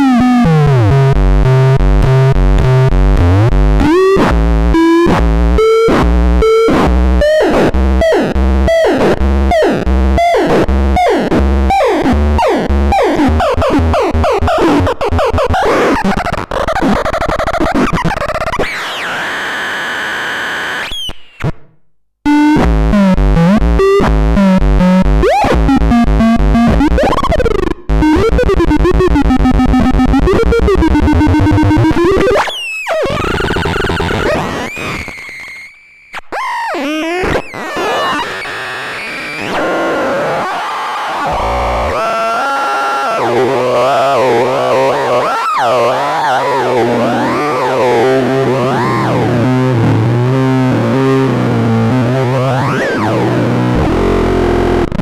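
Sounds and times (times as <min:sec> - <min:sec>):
electronic noise instrument squealing: 0:37.8 - 0:49.3.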